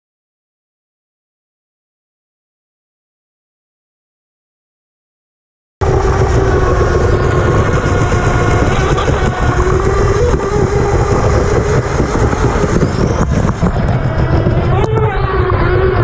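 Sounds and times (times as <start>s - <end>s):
electric motor whine: 5.8s - 16.0s
low rumble of hull water and wind: 5.8s - 16.0s.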